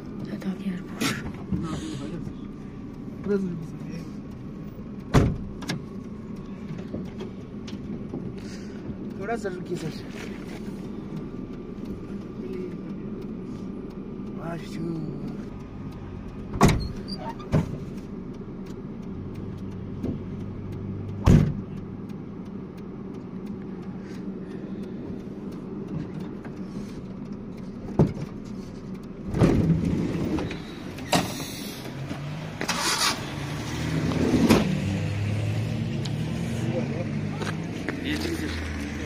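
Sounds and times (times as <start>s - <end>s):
car engine idling: 0.0s - 39.0s
sharp knocks and thumps: 5.1s - 5.9s, 16.5s - 18.0s, 21.1s - 21.8s, 27.8s - 28.4s, 29.2s - 31.4s.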